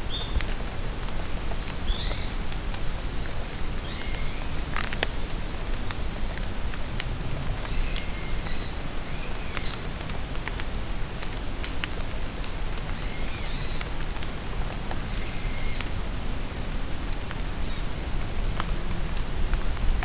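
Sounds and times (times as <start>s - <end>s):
steady rain hiss: 0.0s - 20.0s
songbird calling: 1.4s - 5.7s, 7.6s - 9.8s, 15.1s - 15.9s.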